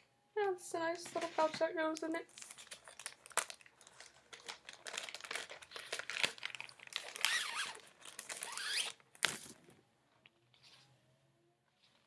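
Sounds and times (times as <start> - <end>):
plastic packaging crinkling: 1.1 - 9.8
squeaky rubbing: 8.5 - 8.9.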